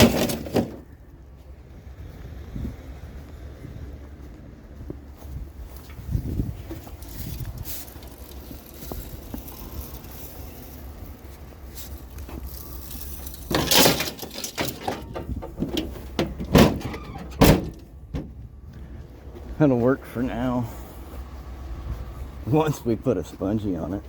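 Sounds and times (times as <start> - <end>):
scrap metal being loaded: 0.0 - 0.9, 11.7 - 17.9
scraping clatter: 0.0 - 1.0, 6.6 - 18.4
steady low rumble: 0.7 - 24.0.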